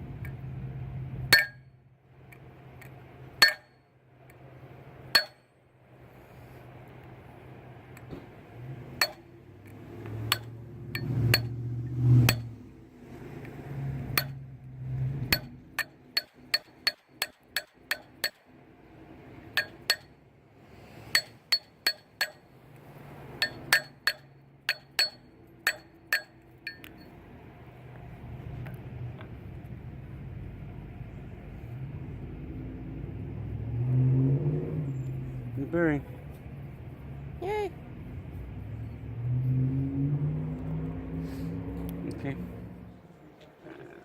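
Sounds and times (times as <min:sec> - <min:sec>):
hammer striking metal: 0:01.3 - 0:01.8, 0:03.4 - 0:03.8, 0:05.1 - 0:05.5, 0:09.0 - 0:09.3, 0:10.2 - 0:12.6, 0:14.1 - 0:14.4, 0:15.3 - 0:18.5, 0:19.5 - 0:20.2, 0:21.1 - 0:22.5, 0:23.4 - 0:27.0.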